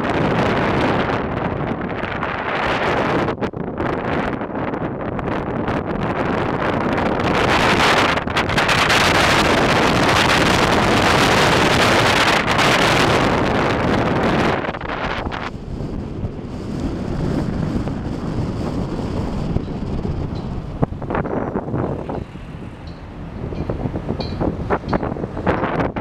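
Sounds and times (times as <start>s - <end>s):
wind rushing over microphone: 0.0s - 26.0s
car rumbling on the road: 6.0s - 26.0s.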